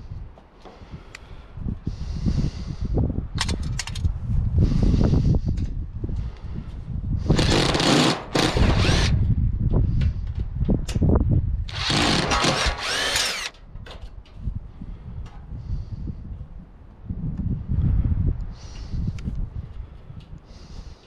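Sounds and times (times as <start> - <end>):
cordless drill motor whine: 7.3 - 9.2, 11.7 - 13.6.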